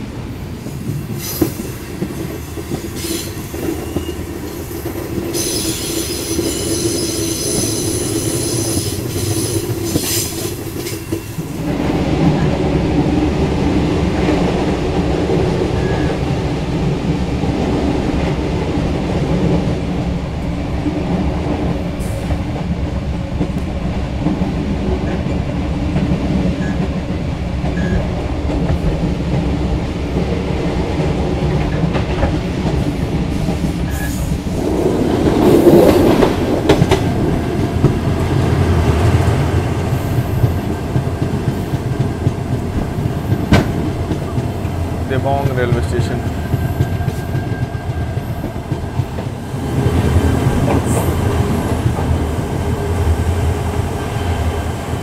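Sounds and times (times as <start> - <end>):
train wheels on track: 0.0 - 55.0
train wheels squealing: 0.6 - 11.6, 15.8 - 16.2, 33.4 - 34.4.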